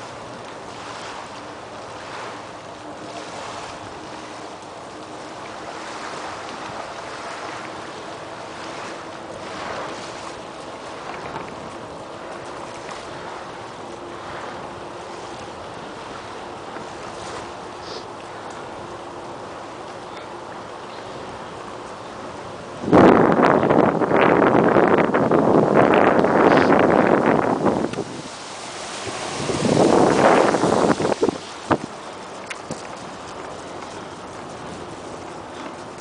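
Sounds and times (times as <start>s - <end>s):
wind rushing over microphone: 22.6s - 36.0s.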